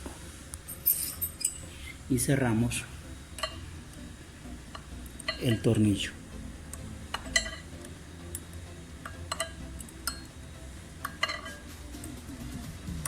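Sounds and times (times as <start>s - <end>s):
low steady hum: 0.0s - 13.0s
metal wrench clinking: 0.7s - 1.6s, 7.1s - 7.6s, 11.0s - 11.6s.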